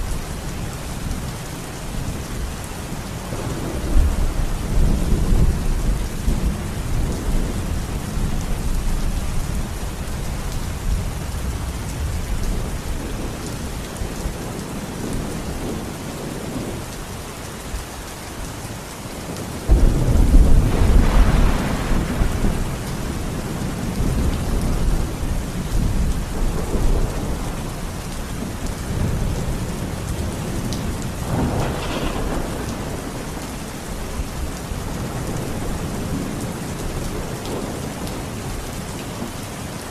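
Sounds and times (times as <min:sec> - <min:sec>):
steady rain: 0:00.0 - 0:39.9
rolling thunder: 0:03.2 - 0:10.0, 0:19.3 - 0:38.4
loud thunderclap: 0:19.7 - 0:25.1, 0:30.7 - 0:33.6.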